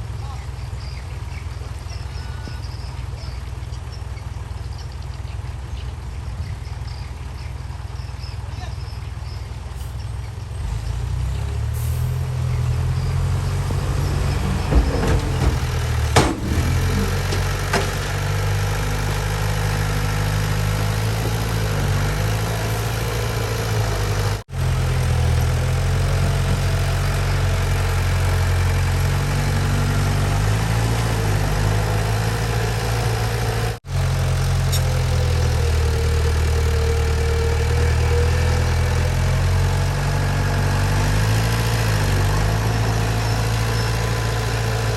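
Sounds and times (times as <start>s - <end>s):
heavy diesel engine running: 9.5s - 44.9s
sharp metallic knocks: 13.2s - 19.4s.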